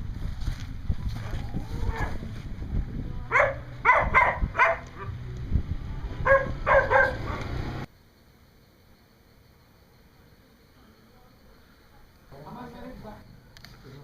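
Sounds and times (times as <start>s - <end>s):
steady low hum: 0.0s - 14.0s
dog barking: 3.3s - 5.1s, 6.2s - 7.5s.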